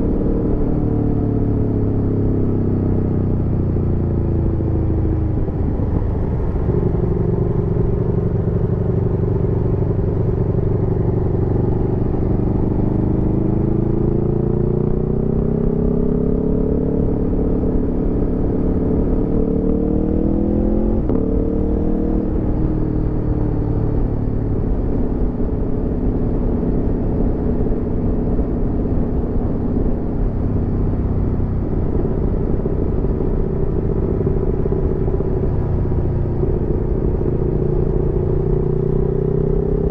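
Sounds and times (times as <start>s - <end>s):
motorcycle engine revving: 5.0s - 25.8s, 31.2s - 39.9s.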